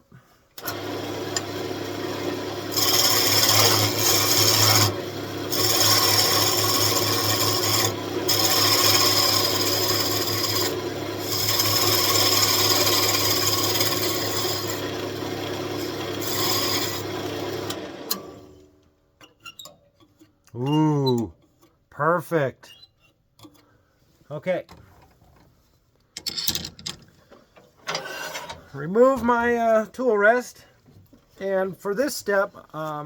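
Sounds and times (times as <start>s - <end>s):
turning tool scraping wood: 0.6s - 18.2s, 27.2s - 29.8s
lathe motor hum: 0.6s - 18.5s.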